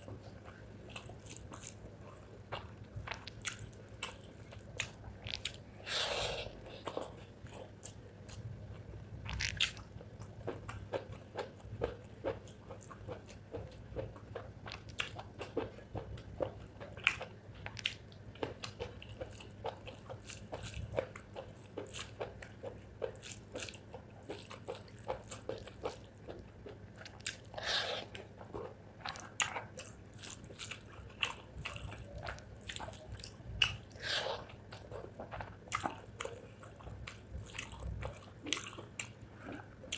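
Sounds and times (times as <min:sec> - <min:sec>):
chewing mouth clicks: 0:09.3 - 0:39.6.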